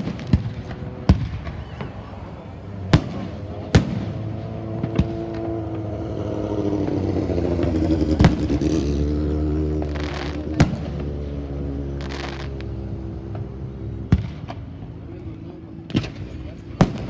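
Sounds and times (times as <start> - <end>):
firework bangs: 0.0 - 5.8, 7.6 - 8.8, 9.8 - 11.2, 15.9 - 17.0
vehicle engine running: 0.5 - 17.0.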